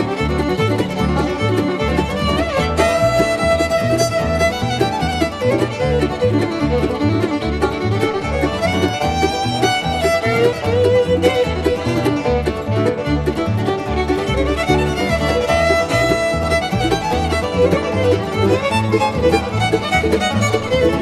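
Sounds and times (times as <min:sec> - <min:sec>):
bass line: 0:00.0 - 0:21.0
bluegrass band playing: 0:00.0 - 0:21.0
fiddle: 0:00.0 - 0:21.0.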